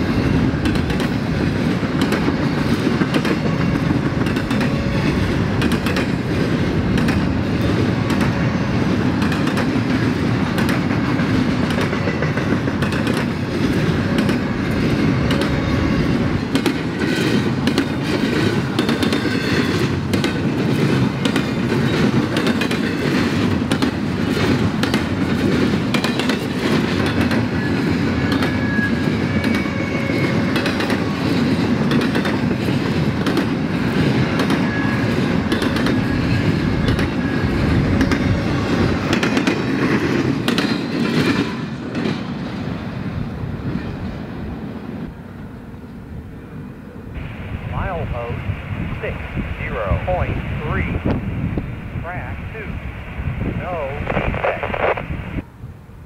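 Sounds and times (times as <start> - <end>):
train cars rumbling past: 0.0 - 54.1
wheels clacking over rail joints: 0.1 - 42.7.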